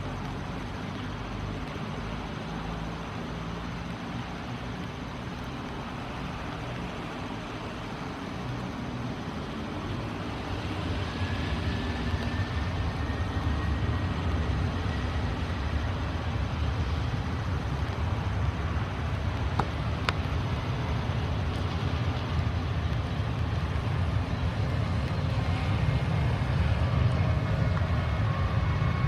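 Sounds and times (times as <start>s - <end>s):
jet engines rumbling: 0.0s - 29.0s.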